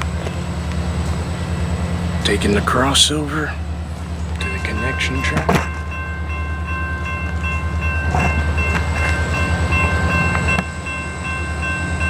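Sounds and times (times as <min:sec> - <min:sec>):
diesel locomotive engine drone: 0:00.0 - 0:12.0
wheels knocking on track: 0:04.2 - 0:06.2, 0:07.2 - 0:10.8.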